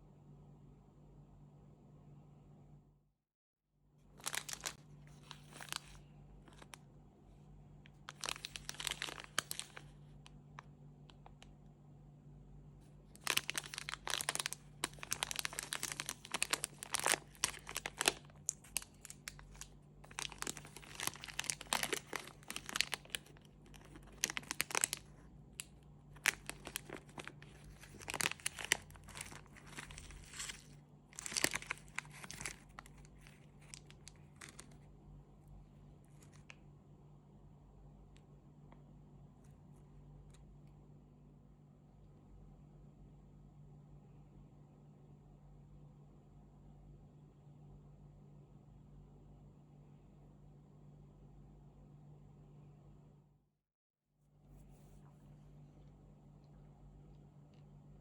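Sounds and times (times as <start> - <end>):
wrappers crinkling and tearing: 4.2 - 6.8, 8.0 - 10.1, 13.2 - 34.9.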